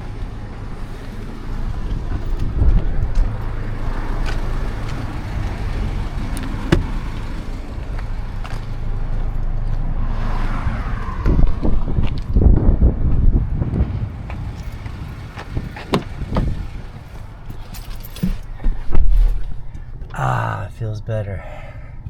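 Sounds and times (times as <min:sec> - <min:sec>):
truck engine idling: 0:00.0 - 0:10.1, 0:11.0 - 0:20.8
sharp clicks and knocks: 0:06.3 - 0:08.6, 0:13.7 - 0:16.9.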